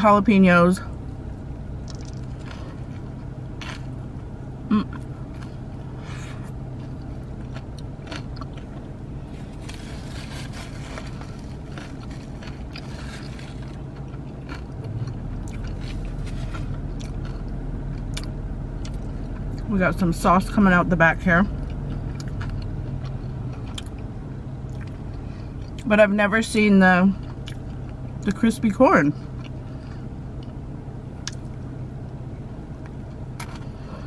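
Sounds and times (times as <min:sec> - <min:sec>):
steady low hum: 0:00.0 - 0:34.0
chewing crunchy sandwich: 0:01.8 - 0:04.0, 0:04.8 - 0:19.7, 0:21.5 - 0:24.1, 0:27.2 - 0:28.0.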